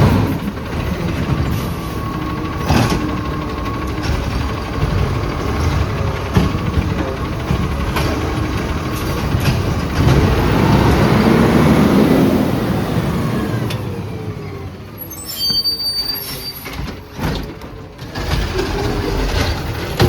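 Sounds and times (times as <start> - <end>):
garbage truck driving by: 0.0 - 20.0
high squeal: 15.0 - 16.9.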